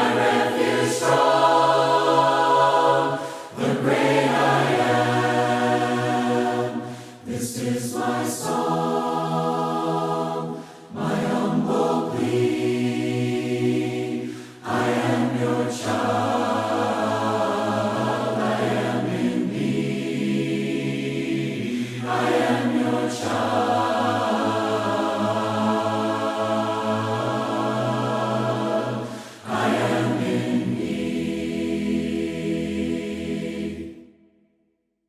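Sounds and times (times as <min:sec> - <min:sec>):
choir singing a cappella hymn: 0:00.0 - 0:34.2.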